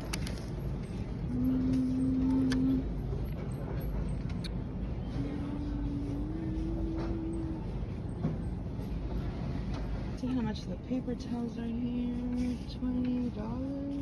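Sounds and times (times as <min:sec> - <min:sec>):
held low tone: 0:00.9 - 0:03.4, 0:05.0 - 0:08.4.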